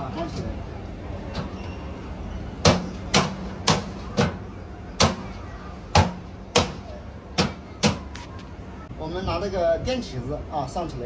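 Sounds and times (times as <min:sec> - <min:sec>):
sharp knocks of fan guard fitting: 0:02.6 - 0:04.4.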